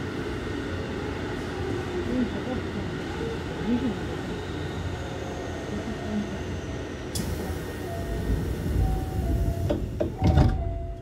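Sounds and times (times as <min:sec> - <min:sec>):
train wheels rumbling on rail: 0:06.6 - 0:11.0.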